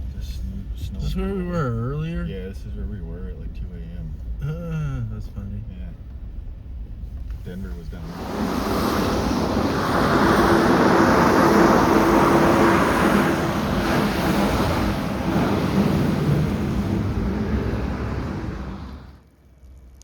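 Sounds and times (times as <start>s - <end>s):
wind roaring over microphone: 7.8s - 19.2s.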